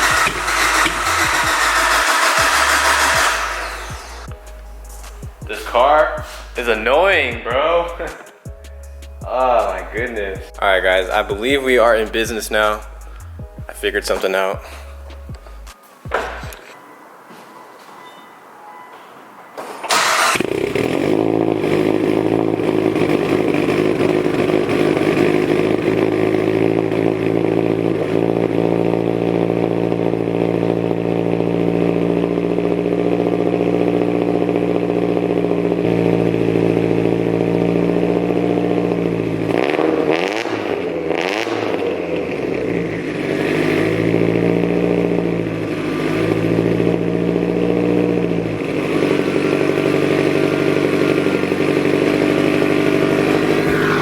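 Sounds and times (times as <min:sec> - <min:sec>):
engine revving: 0:00.0 - 0:04.3, 0:19.9 - 0:54.0
car engine idling: 0:00.0 - 0:16.6, 0:19.9 - 0:54.0
car engine starting: 0:00.0 - 0:16.6, 0:19.8 - 0:54.0.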